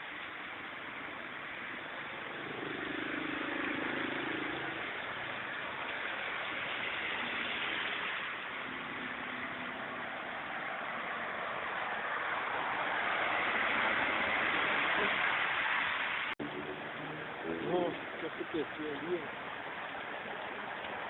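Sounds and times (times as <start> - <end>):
heavy rain pouring: 0.0 - 21.0
car engine passing by: 6.0 - 18.7.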